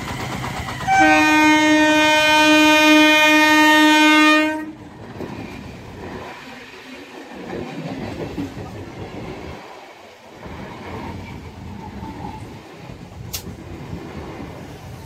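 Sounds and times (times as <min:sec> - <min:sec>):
train wheels rumbling on track: 0:00.0 - 0:15.0
sharp click: 0:13.3 - 0:13.6.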